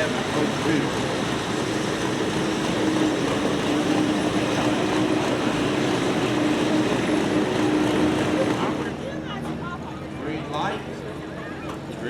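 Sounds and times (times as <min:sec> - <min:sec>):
tractor engine heavy drone: 0:00.0 - 0:09.0.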